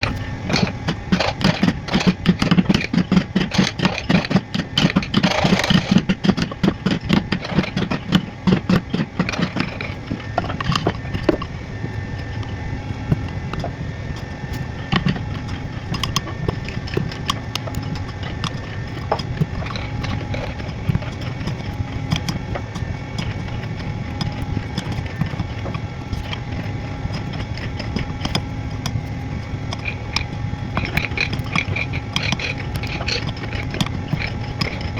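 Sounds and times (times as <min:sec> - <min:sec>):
steady mechanical hum: 0:00.0 - 0:34.9.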